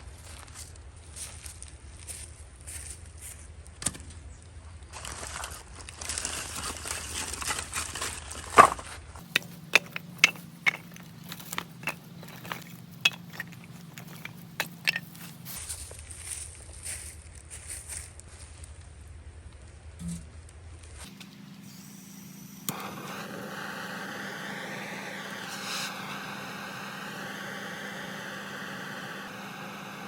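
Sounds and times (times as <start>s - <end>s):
crinkling and rustling: 5.0s - 18.7s
firewood crackling in stove: 9.2s - 15.6s.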